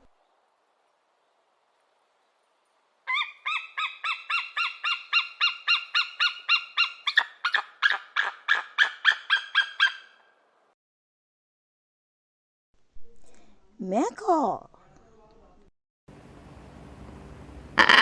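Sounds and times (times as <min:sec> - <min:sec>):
eagle chirping calls: 0:03.1 - 0:10.2.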